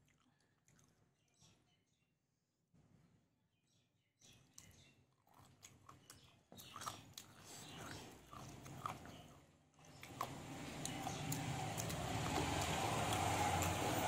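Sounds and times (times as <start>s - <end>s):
faint chewing: 0.0s - 1.5s, 4.4s - 14.0s.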